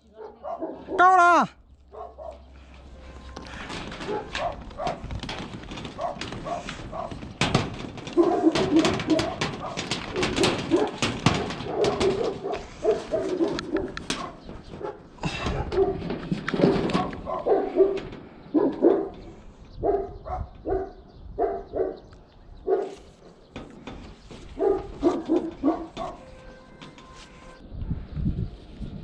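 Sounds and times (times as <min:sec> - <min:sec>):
dog barking: 0:00.0 - 0:01.1, 0:01.9 - 0:02.5, 0:04.0 - 0:05.0, 0:08.2 - 0:09.9, 0:10.6 - 0:16.0, 0:16.8 - 0:19.2, 0:19.8 - 0:23.0, 0:24.6 - 0:26.2.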